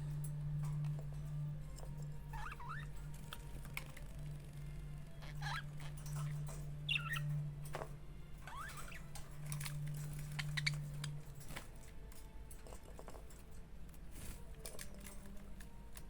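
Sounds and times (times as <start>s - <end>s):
low steady hum: 0.0s - 16.0s
budgerigar chirps and whistles: 6.9s - 7.3s.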